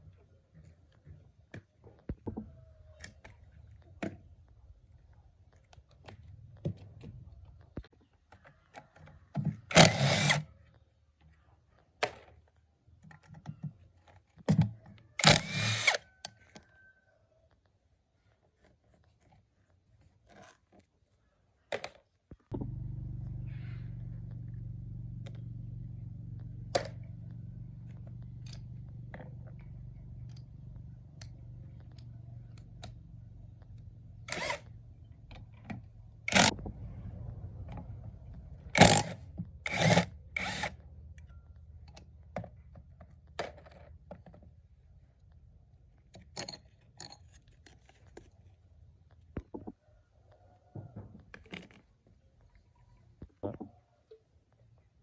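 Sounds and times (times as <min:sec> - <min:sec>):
small motor humming: 0:15.2 - 0:16.0, 0:34.2 - 0:34.8, 0:36.2 - 0:40.8.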